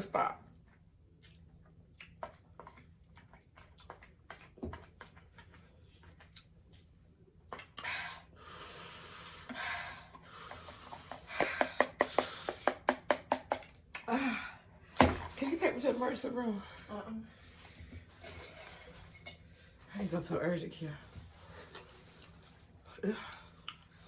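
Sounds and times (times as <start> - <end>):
person breathing hard: 7.8 - 12.9.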